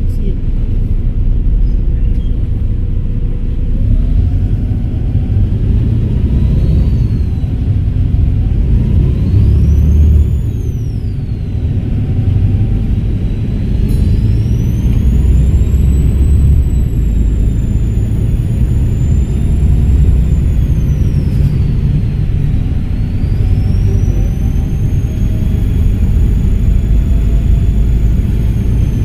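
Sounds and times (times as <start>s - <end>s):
bus diesel engine rumble: 0.0s - 29.0s
high-pitched turbo whistle: 8.8s - 29.0s.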